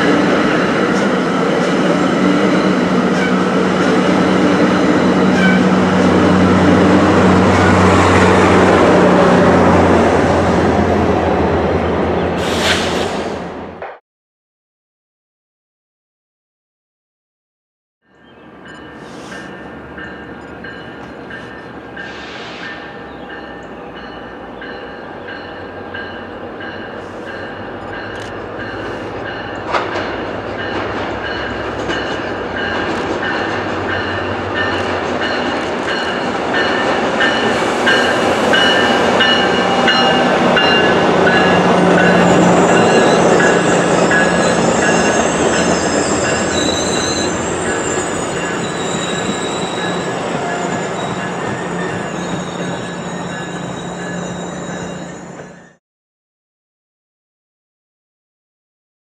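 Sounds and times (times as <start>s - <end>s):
train passing: 0.0s - 13.9s, 18.2s - 55.8s
wheels squealing: 38.1s - 55.8s.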